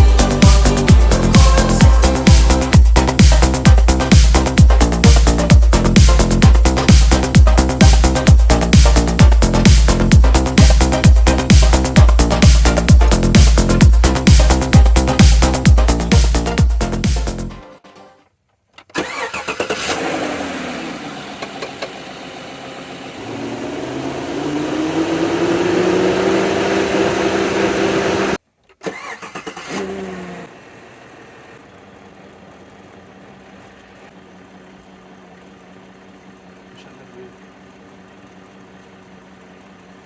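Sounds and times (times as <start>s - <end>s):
truck engine starting and revving: 0.0s - 17.6s, 18.9s - 33.1s.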